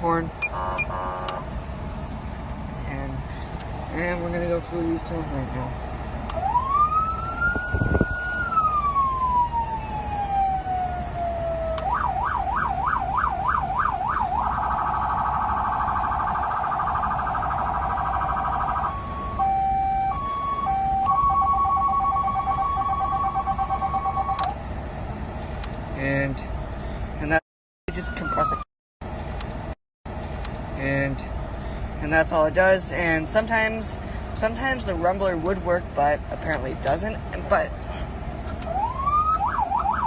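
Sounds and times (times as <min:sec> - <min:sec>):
electronic police siren: 0:06.4 - 0:24.5, 0:27.9 - 0:28.7, 0:38.6 - 0:40.0.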